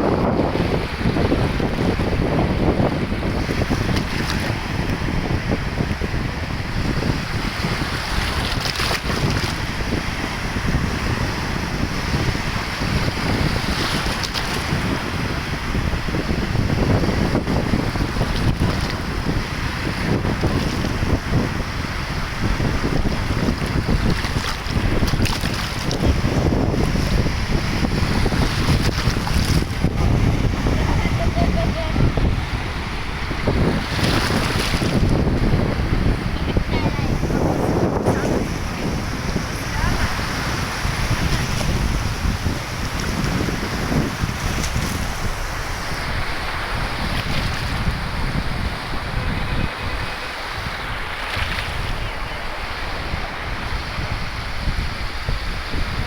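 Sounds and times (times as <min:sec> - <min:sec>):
wind buffeting microphone: 0:00.0 - 0:56.0
steady rushing noise: 0:20.9 - 0:46.7.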